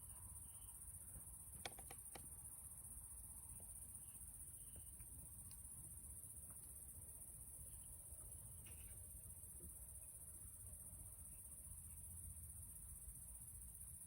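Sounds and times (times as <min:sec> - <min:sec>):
crickets chirping: 0:00.0 - 0:14.0
sharp clicks: 0:01.6 - 0:02.3.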